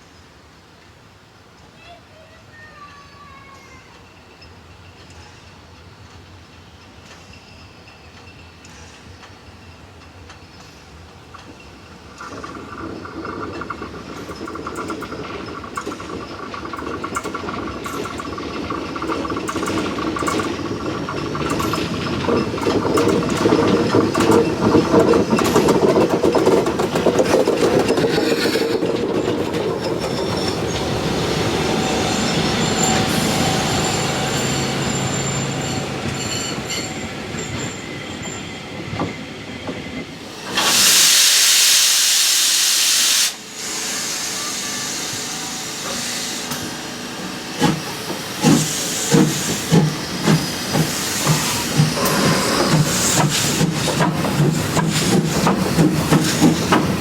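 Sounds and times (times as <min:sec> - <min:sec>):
train wheels clicking over rail joints: 0:03.9 - 0:57.0
loud hiss of steam: 0:27.1 - 0:38.2, 0:40.1 - 0:57.0.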